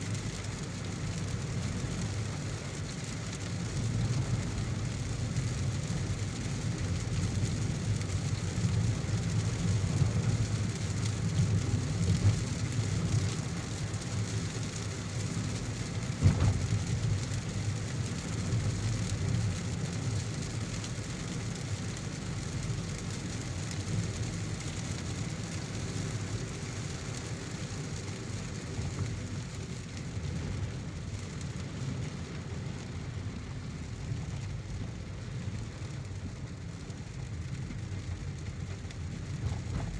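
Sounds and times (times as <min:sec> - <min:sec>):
rain hiss: 0:00.0 - 0:39.9
car rumbling on road: 0:00.8 - 0:19.5, 0:23.9 - 0:39.9.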